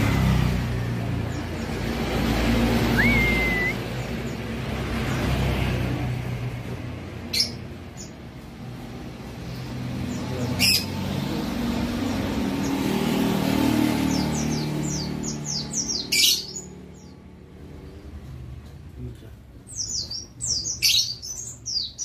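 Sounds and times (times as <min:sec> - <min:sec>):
road traffic rumble: 0:00.0 - 0:22.0
bird chirps: 0:02.8 - 0:04.4, 0:14.0 - 0:17.2, 0:19.6 - 0:22.0.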